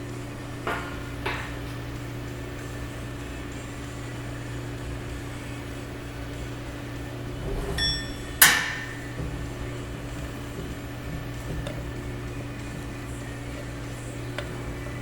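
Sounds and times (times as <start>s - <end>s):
electrical hum of shop equipment: 0.0s - 15.0s
metallic ring: 7.4s - 9.2s
metal-on-metal clank: 7.4s - 9.8s.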